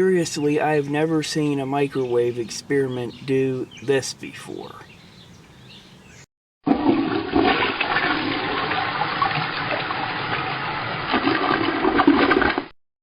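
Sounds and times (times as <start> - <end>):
rushing water gushing: 6.7 - 12.7.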